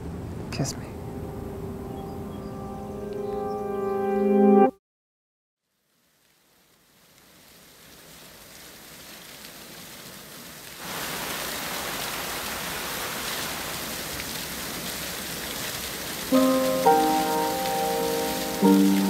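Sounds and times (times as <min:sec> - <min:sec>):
fountain water splashing: 0:05.9 - 0:19.0.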